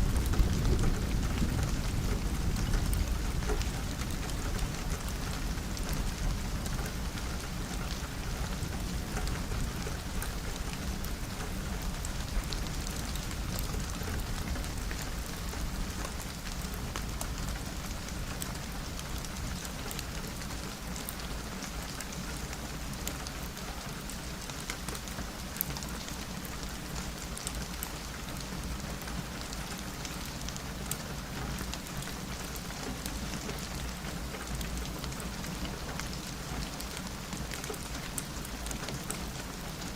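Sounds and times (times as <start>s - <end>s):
low thunder rumble: 0.0s - 7.2s
rain pattering on a window: 0.0s - 39.9s.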